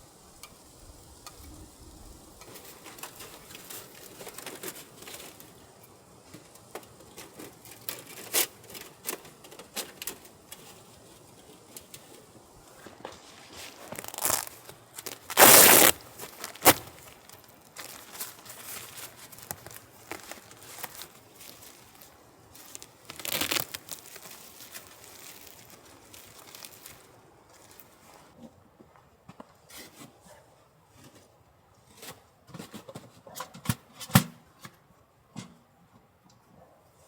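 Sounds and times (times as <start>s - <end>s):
crinkling rustling handling noise: 2.2s - 28.4s
loud rustle: 7.2s - 28.3s.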